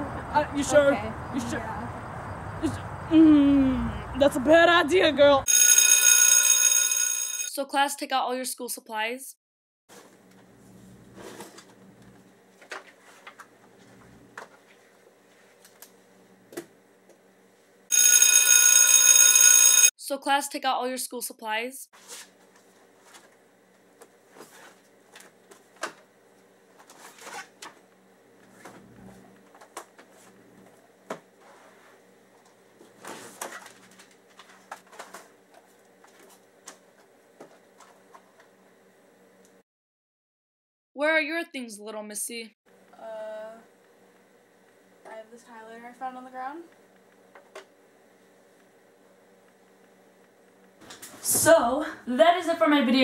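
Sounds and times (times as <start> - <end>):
paper rustling: 12.5 - 13.9.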